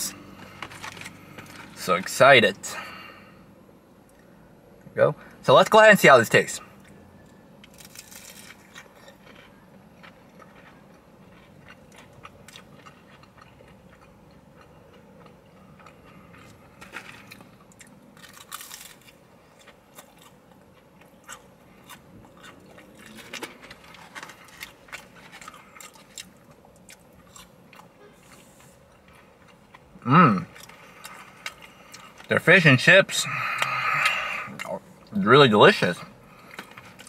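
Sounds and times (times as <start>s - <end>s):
low steady background hum: 0.0s - 37.0s
crunching fried fish: 6.8s - 32.3s.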